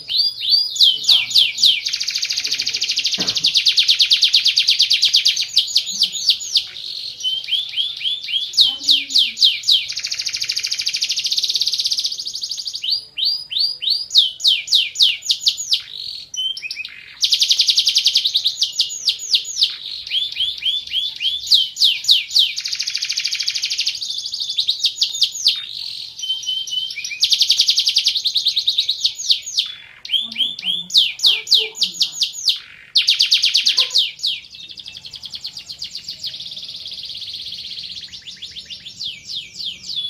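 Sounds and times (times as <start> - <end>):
canary singing trills: 0.0 - 40.0.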